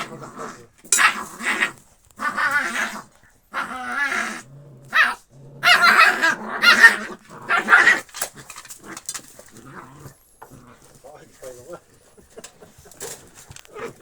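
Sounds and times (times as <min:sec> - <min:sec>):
dogs growling: 0:00.0 - 0:14.0
dogs crying in a fight: 0:04.9 - 0:08.0.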